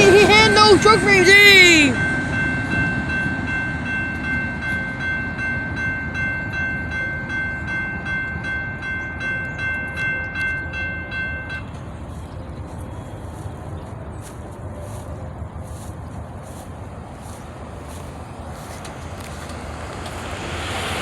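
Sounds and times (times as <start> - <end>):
steady high ringing tone: 0.0 - 14.2
freight train wheels clattering: 0.0 - 21.0.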